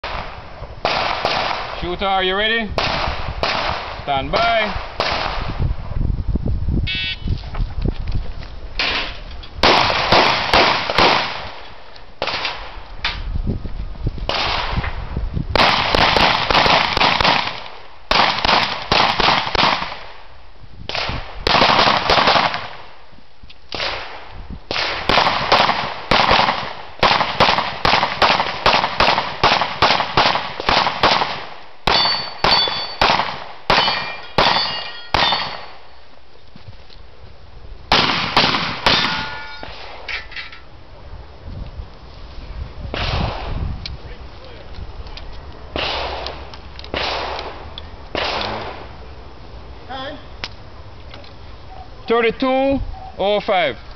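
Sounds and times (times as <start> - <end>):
pistol shots: 0.0 - 1.9, 2.8 - 5.5, 8.8 - 12.7, 15.6 - 20.2, 20.9 - 22.8, 23.7 - 35.8, 37.9 - 40.0, 45.8 - 48.9
steel targets ringing: 31.9 - 33.0, 33.7 - 35.7, 39.0 - 39.7.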